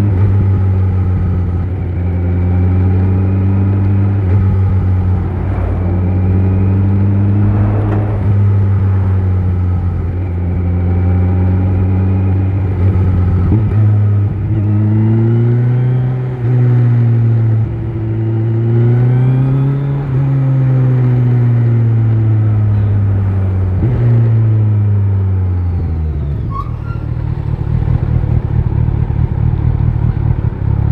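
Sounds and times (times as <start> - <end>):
motorcycle engine running: 0.0 - 18.7, 27.1 - 30.9.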